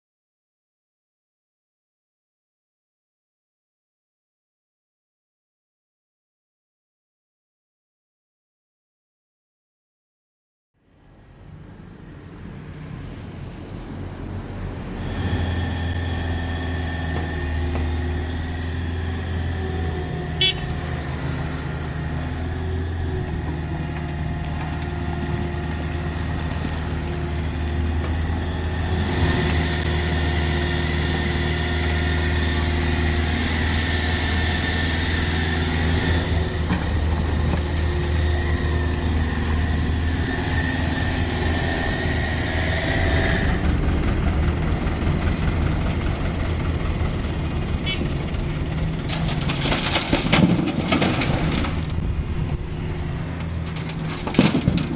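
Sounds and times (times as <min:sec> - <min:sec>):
diesel engine running: 0:14.6 - 0:54.9.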